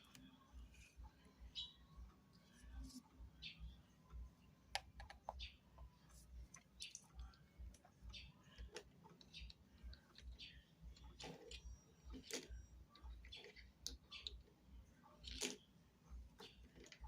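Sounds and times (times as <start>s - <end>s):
objects being handled: 4.7s - 15.7s, 16.3s - 17.0s.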